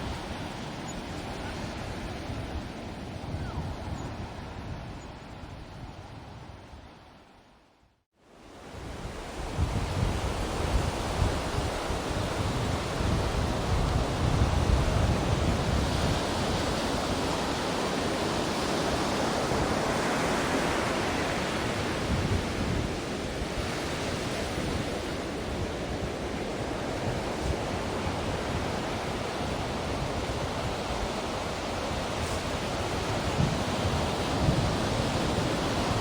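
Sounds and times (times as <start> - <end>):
ocean waves breaking: 10.2 - 36.0.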